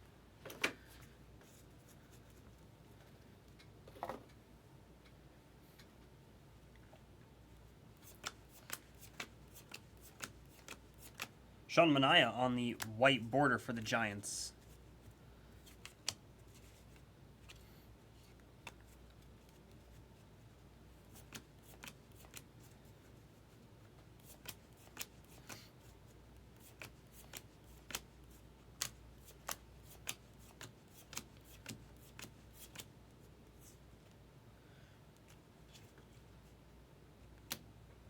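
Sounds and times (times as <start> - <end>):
cards flicking: 8.0 - 11.4, 26.7 - 28.1, 28.8 - 32.9.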